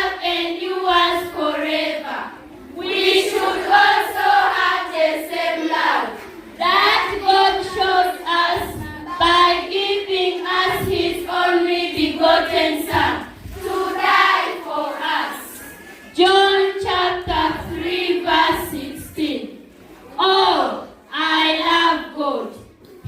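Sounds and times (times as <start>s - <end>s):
children singing together: 0.0s - 22.6s.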